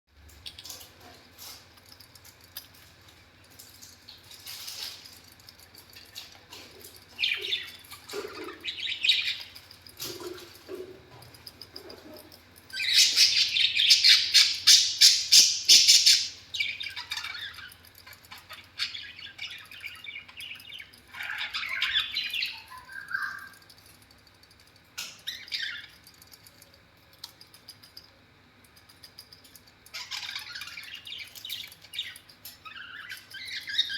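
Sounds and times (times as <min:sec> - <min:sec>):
budgerigar chirping and chattering: 0:12.8 - 0:17.8.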